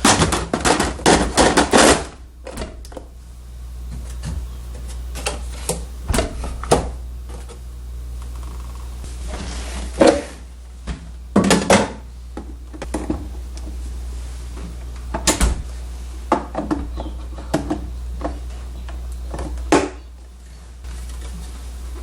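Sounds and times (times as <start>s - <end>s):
refrigerator doors and drawers clattering: 0.0s - 3.0s, 5.2s - 6.9s, 15.1s - 15.7s
steady low hum: 0.0s - 22.0s.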